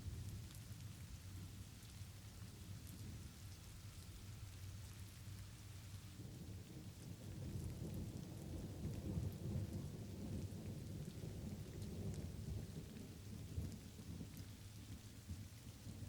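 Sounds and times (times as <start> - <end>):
light rain falling: 0.0 - 16.0
rain drops ticking: 0.0 - 16.0
rolling thunder rumble: 6.2 - 14.4.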